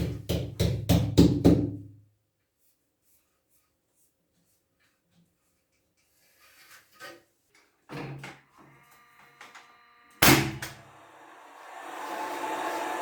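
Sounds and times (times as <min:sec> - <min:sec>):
steady noise: 0:10.6 - 0:13.0.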